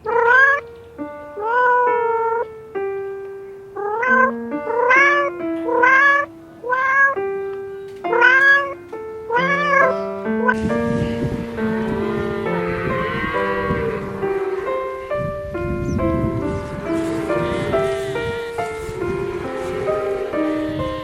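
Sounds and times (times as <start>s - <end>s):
cat meowing: 0.0s - 0.6s, 1.4s - 2.4s, 3.8s - 7.2s, 8.1s - 15.2s
background music with held notes: 0.0s - 21.0s.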